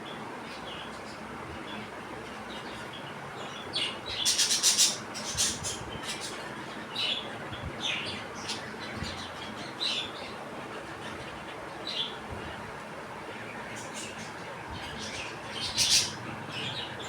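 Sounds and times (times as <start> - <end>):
budgerigars chirping: 15.0 - 17.0.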